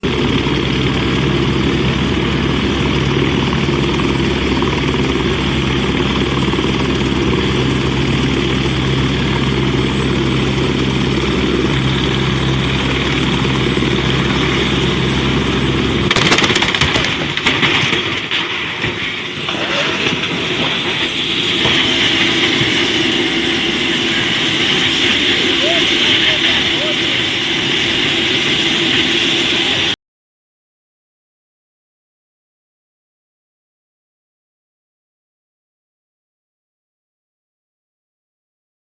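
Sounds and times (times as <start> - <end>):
helicopter engine and rotor drone: 0.0 - 30.0
high wavering whine: 0.1 - 29.9
crashing impacts: 16.1 - 19.2.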